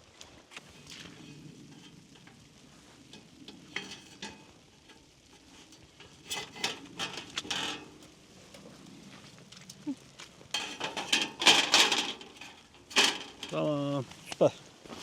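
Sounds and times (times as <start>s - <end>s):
rustling of things handled: 0.0s - 15.0s
sharp clicks and knocks: 10.6s - 13.6s.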